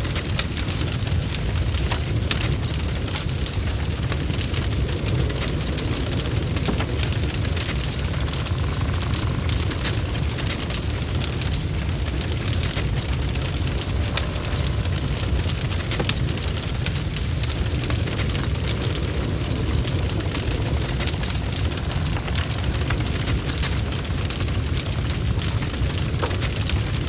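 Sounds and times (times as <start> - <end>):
bonfire crackling and popping: 0.0 - 27.0
low rumble of flames: 0.0 - 27.0.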